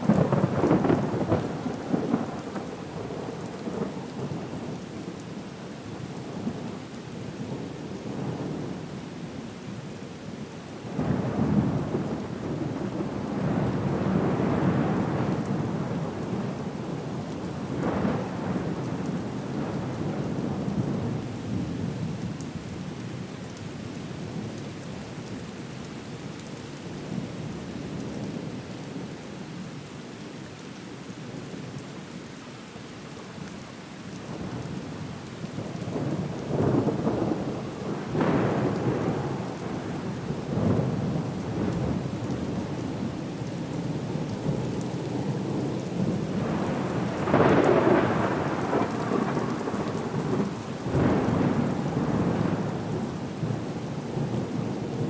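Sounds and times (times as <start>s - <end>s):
steady rain: 0.0s - 55.0s
deep rumbling thunder: 0.1s - 3.9s, 35.8s - 42.7s, 44.4s - 55.0s.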